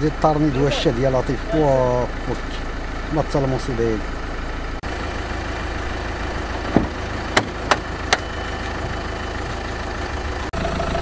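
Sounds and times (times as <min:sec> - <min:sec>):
car engine idling: 0:00.0 - 0:11.0
car door clicks: 0:06.7 - 0:08.3.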